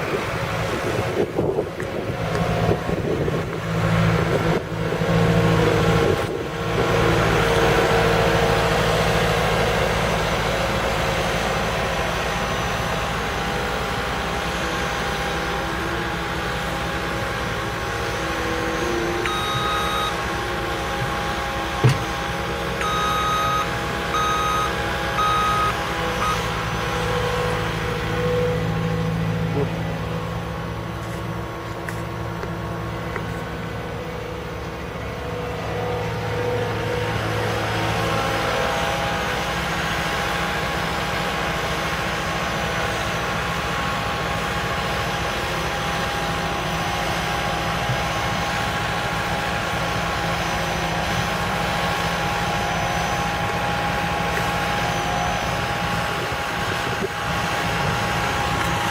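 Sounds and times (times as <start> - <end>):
diesel engine running: 0.0 - 58.9
reversing alarm beeping: 18.7 - 20.4, 22.8 - 29.3.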